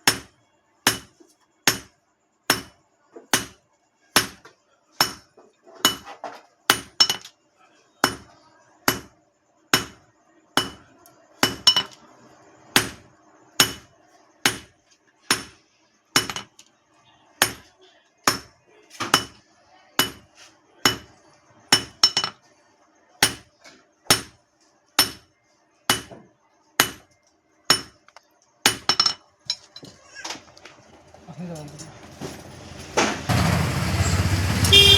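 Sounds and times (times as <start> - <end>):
hammer striking steel on anvil: 0.0 - 0.3, 0.9 - 1.1, 1.7 - 1.9, 2.5 - 2.7, 3.3 - 3.6, 4.2 - 4.4, 5.0 - 6.1, 6.7 - 7.3, 8.0 - 8.3, 8.9 - 9.1, 9.8 - 10.0, 10.6 - 10.8, 11.4 - 12.0, 12.8 - 13.0, 13.6 - 14.7, 15.3 - 15.5, 16.2 - 16.5, 17.4 - 17.6, 18.3 - 19.4, 20.0 - 21.1, 21.7 - 22.4, 23.2 - 23.5, 24.1 - 24.4, 25.0 - 25.3, 25.9 - 26.2, 26.8 - 27.1, 27.7 - 28.0, 28.6 - 29.2.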